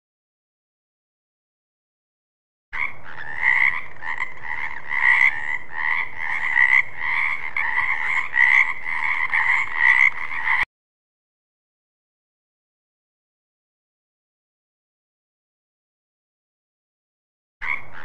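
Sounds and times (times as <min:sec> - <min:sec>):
frogs croaking: 0:02.8 - 0:10.7, 0:17.6 - 0:18.0.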